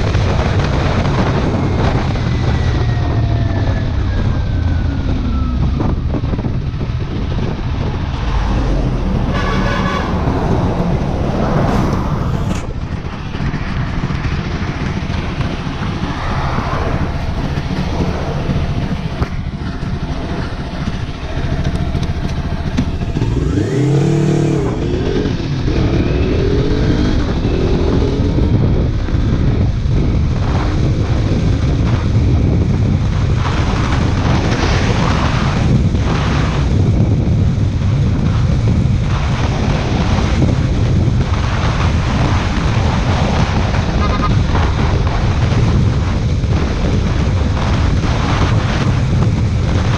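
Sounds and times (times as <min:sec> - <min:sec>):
motorcycle engine running: 0:00.0 - 0:49.9
wind noise on microphone: 0:00.0 - 0:49.9.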